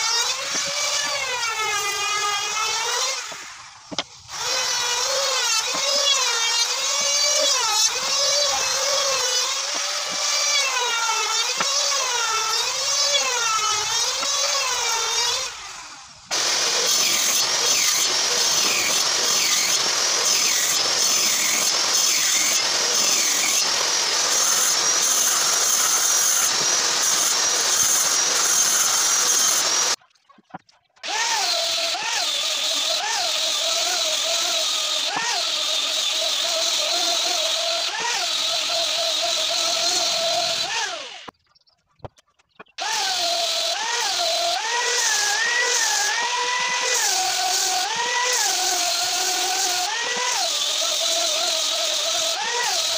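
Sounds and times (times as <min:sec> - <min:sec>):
electric drill in wood: 0:00.0 - 0:30.0, 0:31.0 - 0:41.3, 0:42.8 - 0:52.9
rough noisy power tool: 0:00.0 - 0:30.0, 0:31.0 - 0:41.3, 0:42.8 - 0:52.9.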